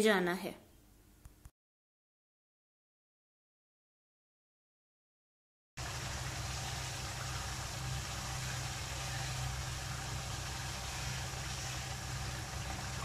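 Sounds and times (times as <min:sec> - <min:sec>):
food sizzling: 0:05.8 - 0:13.0
steady low hum: 0:05.8 - 0:13.0.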